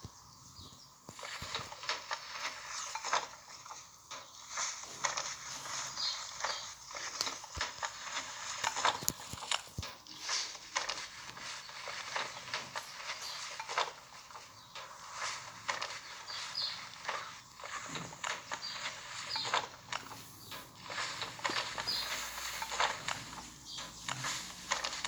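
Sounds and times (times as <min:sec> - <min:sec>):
footsteps crunching through dry leaves: 0:15.2 - 0:25.0.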